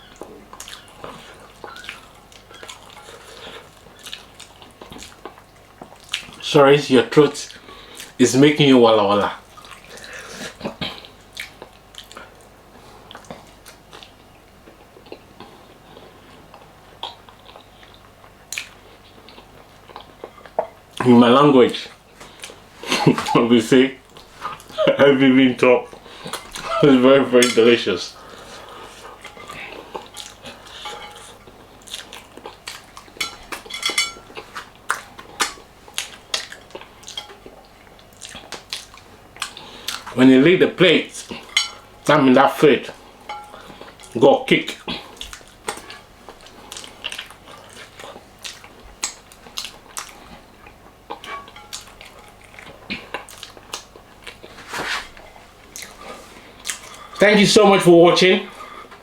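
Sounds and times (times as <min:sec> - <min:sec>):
person chewing food: 0:00.0 - 0:06.4, 0:09.4 - 0:21.0, 0:27.6 - 0:40.2, 0:42.9 - 0:54.6, 0:55.2 - 0:57.2
cutlery scraping a plate: 0:27.4 - 0:27.8, 0:30.2 - 0:31.5, 0:33.2 - 0:34.7, 0:41.5 - 0:42.1, 0:43.3 - 0:43.8, 0:51.2 - 0:52.4.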